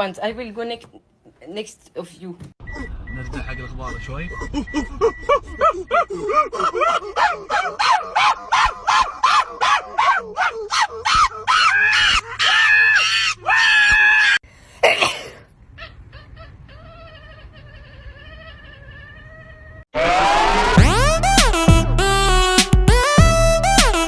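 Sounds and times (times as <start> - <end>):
pet animal crying: 2.7 - 14.4, 15.7 - 20.2.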